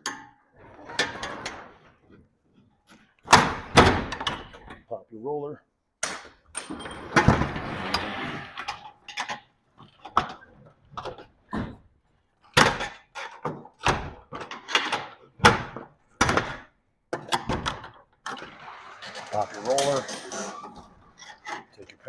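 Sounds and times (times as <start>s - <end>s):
metal clanks of door rollers: 0.0s - 1.8s, 6.6s - 9.5s, 17.2s - 21.9s
rattling scrape: 18.3s - 22.0s.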